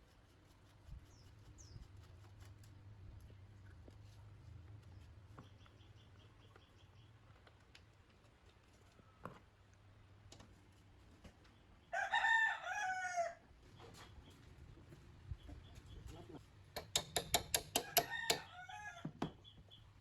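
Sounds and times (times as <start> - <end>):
rooster crowing: 11.9 - 13.4, 17.7 - 19.2.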